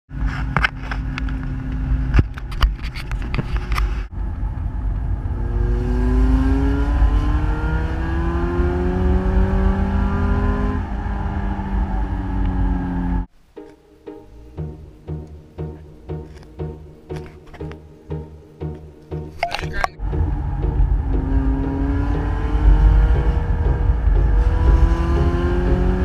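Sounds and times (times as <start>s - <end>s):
car engine revving: 4.1s - 13.3s, 14.5s - 26.0s.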